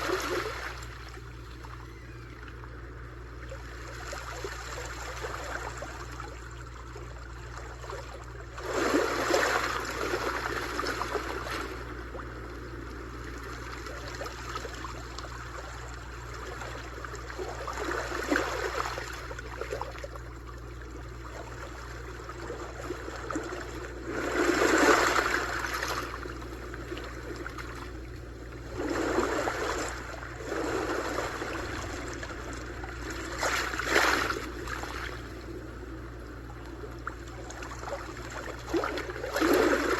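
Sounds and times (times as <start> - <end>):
steady low hum: 0.0 - 39.9
sea waves washing onto shore: 23.9 - 36.4.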